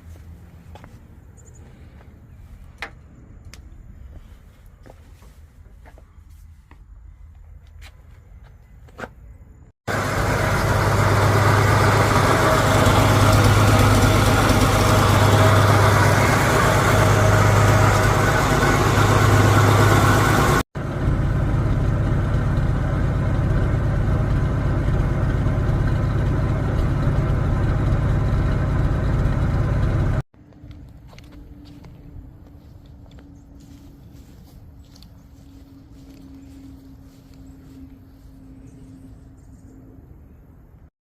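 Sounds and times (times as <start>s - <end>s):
engine idling: 9.9s - 30.2s.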